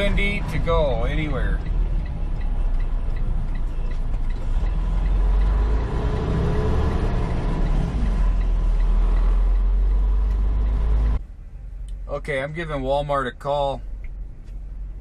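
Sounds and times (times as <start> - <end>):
faint regular ticking: 0.0 - 11.2
truck engine running: 0.0 - 11.2.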